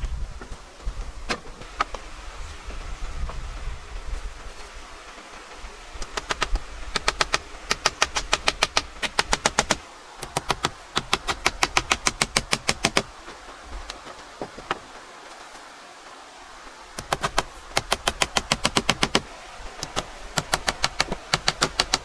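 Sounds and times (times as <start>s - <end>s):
hammer tapping nails into wood: 17.0s - 19.2s, 19.8s - 22.0s.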